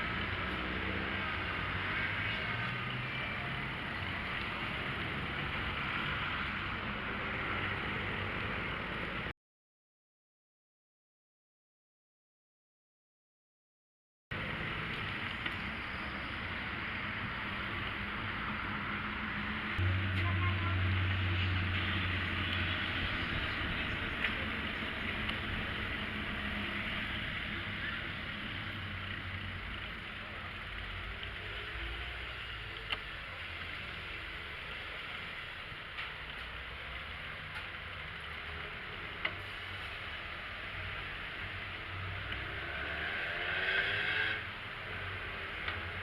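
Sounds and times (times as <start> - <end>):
traffic: 0.0 - 9.3, 14.3 - 46.0
wind noise on microphone: 21.8 - 27.4.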